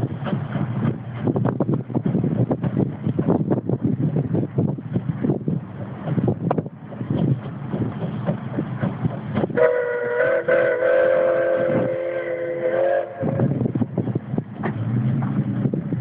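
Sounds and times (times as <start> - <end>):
gusty low rumble: 0.0 - 16.0
wind on microphone: 0.0 - 16.0
steam locomotive whistle: 9.5 - 13.6.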